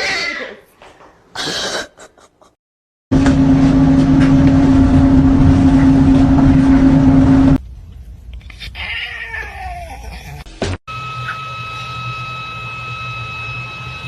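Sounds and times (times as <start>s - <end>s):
loud motor drone: 3.1s - 7.6s, 10.9s - 14.0s.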